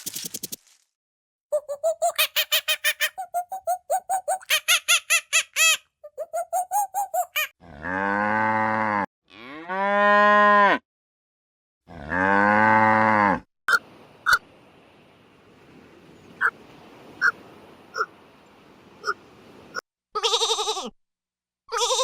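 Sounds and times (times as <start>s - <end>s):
high squeaky animal calls: 1.5s - 7.5s
cattle mooing: 7.6s - 10.8s, 11.9s - 13.4s.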